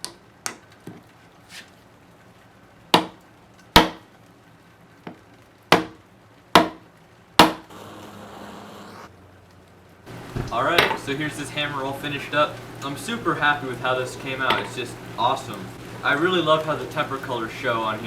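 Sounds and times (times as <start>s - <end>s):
hammer striking wooden wedge: 3.0s - 3.2s, 3.8s - 4.0s, 5.7s - 6.0s, 6.6s - 6.8s, 7.4s - 7.7s.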